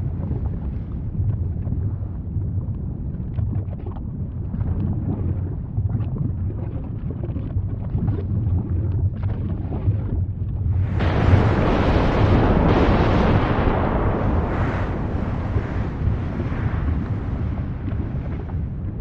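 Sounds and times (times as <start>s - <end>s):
crackles and pops: 0.0s - 19.0s
wind on microphone: 0.0s - 19.0s
volcano rumbling: 8.2s - 19.0s
loud rushing blast: 10.8s - 19.0s.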